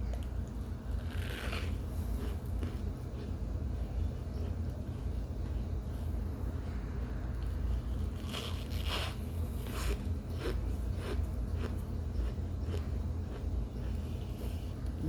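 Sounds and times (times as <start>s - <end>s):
steady low hum: 0.0s - 15.0s
person biting and chewing: 0.9s - 3.3s, 8.0s - 14.0s.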